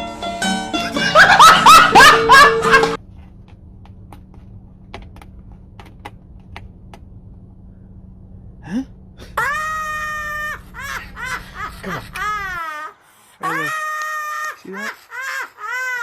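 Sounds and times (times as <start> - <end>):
low hum: 1.2 - 12.6.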